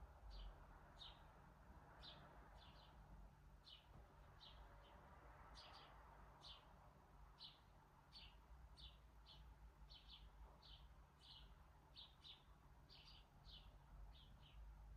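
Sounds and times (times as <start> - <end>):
small bird chirping: 0.3 - 1.3, 7.4 - 14.7.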